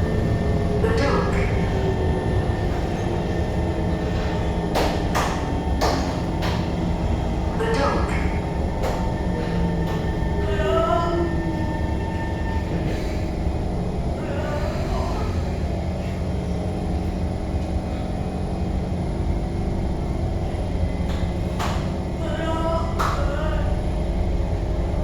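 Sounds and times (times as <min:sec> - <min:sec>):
train motor whine: 0:00.0 - 0:18.1
train wheels rumbling on track: 0:00.0 - 0:25.0.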